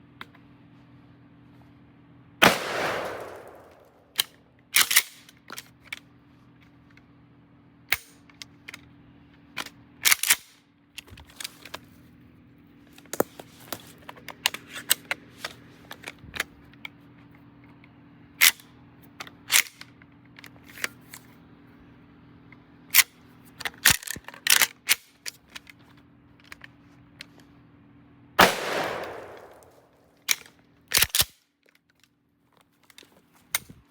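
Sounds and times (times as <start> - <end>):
gunshot with echoing tail: 2.4 - 3.9, 28.4 - 29.9
metallic clicks of gun action: 2.4 - 6.0, 9.6 - 10.6, 22.9 - 25.8, 28.4 - 32.1.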